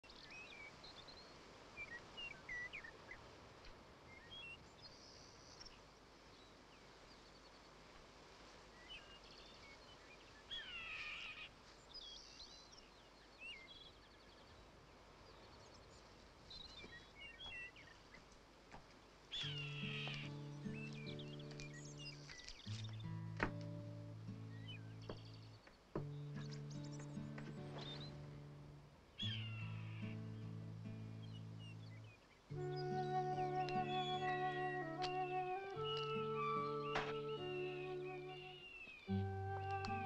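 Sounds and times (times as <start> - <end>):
falling bird calls: 8.6 - 40.0
birds chirping and whistling: 19.3 - 28.4, 29.2 - 40.0.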